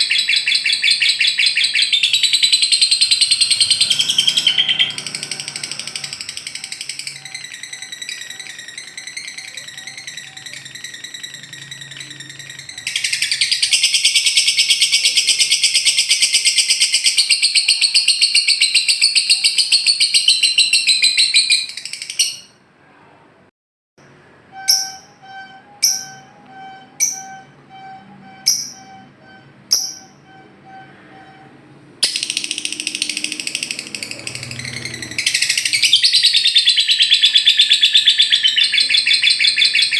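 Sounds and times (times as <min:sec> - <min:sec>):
lovebird chattering trill: 0:00.0 - 0:22.5, 0:29.7 - 0:30.4, 0:32.0 - 0:39.9.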